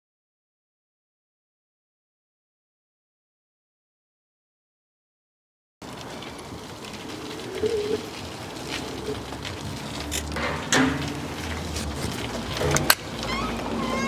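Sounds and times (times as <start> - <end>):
bird cooing: 7.0 - 9.3, 13.2 - 14.0
clicks and knocks: 10.0 - 13.3.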